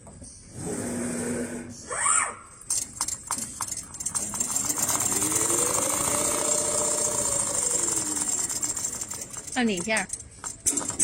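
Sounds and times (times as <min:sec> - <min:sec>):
sewing machine motor running: 0:03.3 - 0:11.0.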